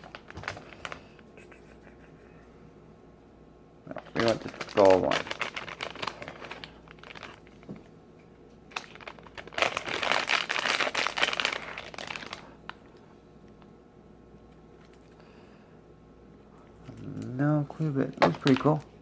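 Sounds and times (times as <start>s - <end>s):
plastic packet crinkling and tearing: 0.0s - 1.2s, 3.9s - 7.7s, 8.7s - 13.0s, 16.9s - 18.9s.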